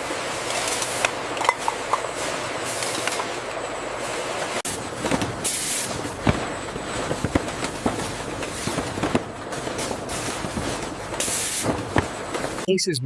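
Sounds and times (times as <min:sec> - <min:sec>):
steady mechanical running noise: 0:00.0 - 0:13.0
machinery knocks and clacks: 0:06.0 - 0:12.7.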